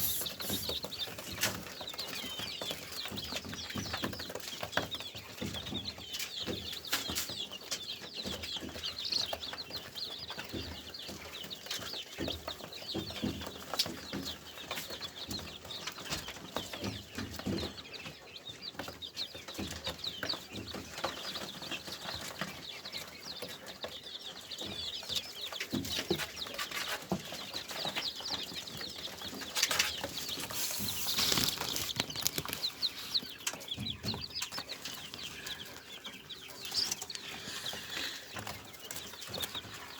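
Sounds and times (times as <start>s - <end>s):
wings fluttering: 0.0s - 0.8s, 29.3s - 34.2s
cage birds chirping: 0.0s - 39.9s.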